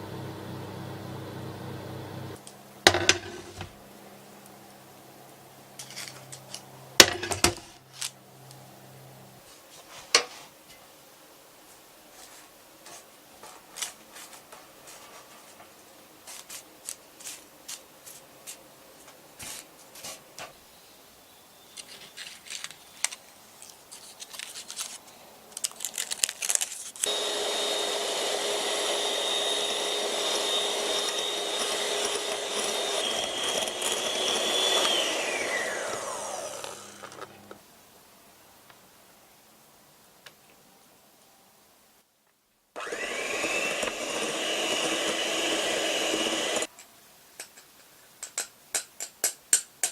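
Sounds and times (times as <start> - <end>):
kitchen appliance motor whining: 27.0 - 37.6, 42.8 - 46.7.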